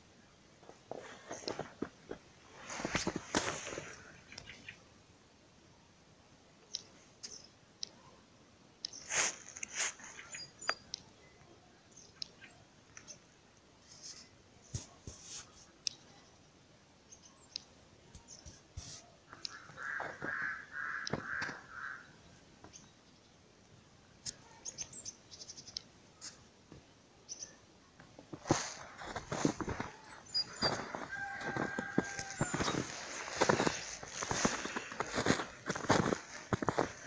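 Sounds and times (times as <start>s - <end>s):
bird calls: 3.8s - 4.8s, 19.3s - 23.3s, 28.5s - 37.0s.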